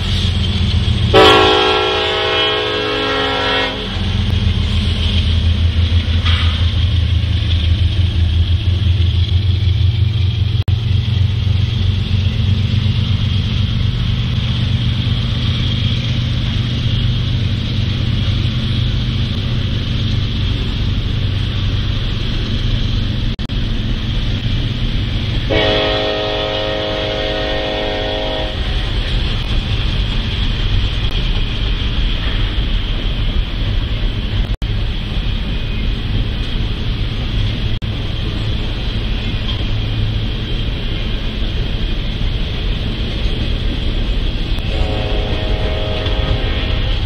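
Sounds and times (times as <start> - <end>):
freight train wheels rumbling: 0.0 - 47.0.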